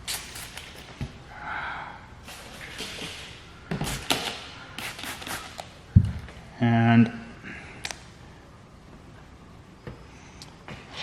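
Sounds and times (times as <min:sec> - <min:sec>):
spray bottle squirting: 0:00.0 - 0:00.9, 0:03.8 - 0:05.7.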